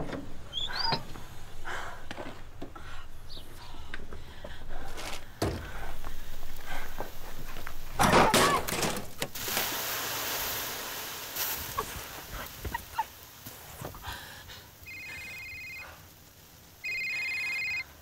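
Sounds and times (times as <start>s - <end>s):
steady hiss of smoke: 0.2s - 8.1s, 8.7s - 18.0s.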